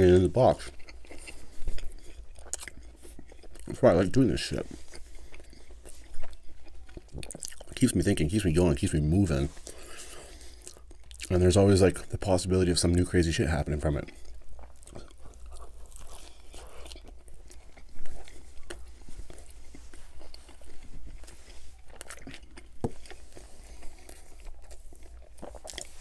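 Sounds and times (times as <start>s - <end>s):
man chewing food: 0.0s - 11.4s, 13.8s - 26.0s
wet smacking and crunches: 13.9s - 26.0s.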